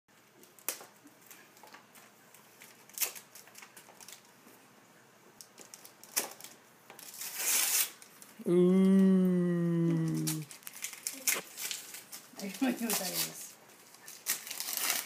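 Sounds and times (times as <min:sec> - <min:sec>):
paper crinkling and tearing: 0:02.5 - 0:04.3, 0:05.6 - 0:08.1, 0:10.2 - 0:15.0.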